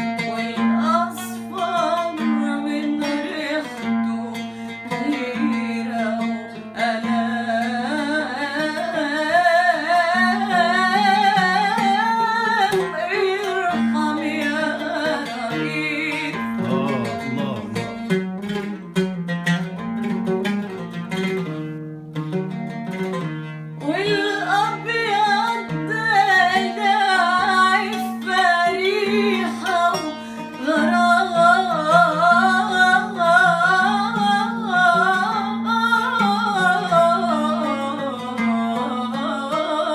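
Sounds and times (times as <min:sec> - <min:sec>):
plucked strings: 0:00.0 - 0:39.9
person singing ornamented melody: 0:12.7 - 0:18.0.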